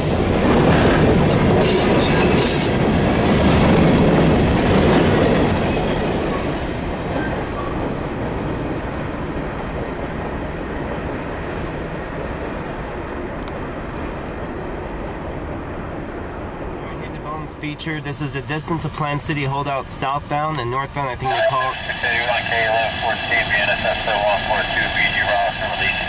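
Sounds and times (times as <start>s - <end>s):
train wheels clattering on track: 0.0s - 11.8s.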